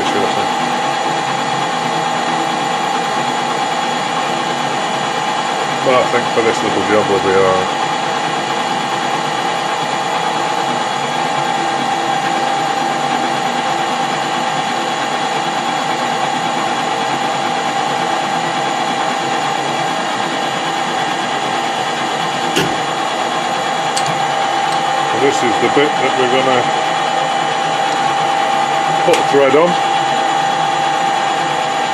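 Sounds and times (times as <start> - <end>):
metal lathe whining: 0.0 - 31.9
short knock: 22.6 - 22.8.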